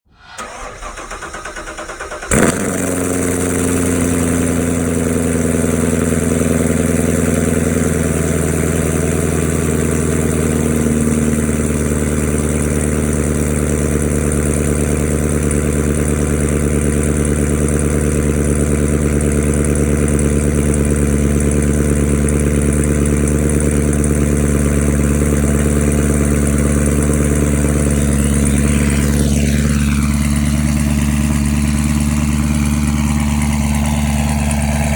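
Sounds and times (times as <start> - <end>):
car engine idling: 0.0 - 34.9
engine starting with bark: 0.2 - 4.5
car engine cranking: 0.2 - 34.9.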